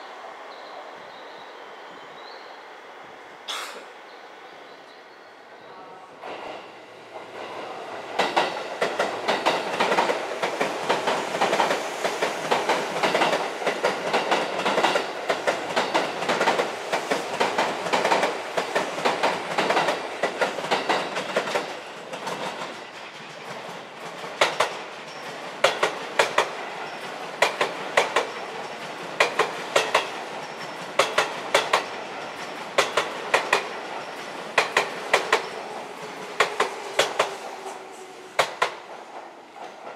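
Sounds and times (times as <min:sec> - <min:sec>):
train wheel clacks over rail joints: 0:08.2 - 0:37.6, 0:38.4 - 0:39.9.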